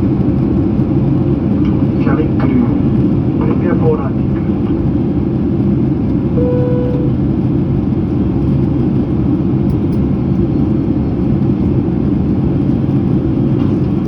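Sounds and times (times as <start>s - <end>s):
jet cabin rumble and hum: 0.0s - 14.0s
short faint tone: 6.4s - 7.4s.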